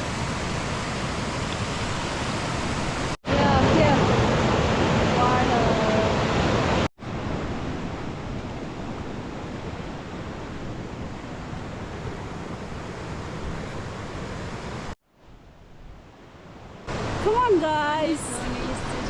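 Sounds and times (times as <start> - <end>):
rushing stream: 0.0 - 19.0.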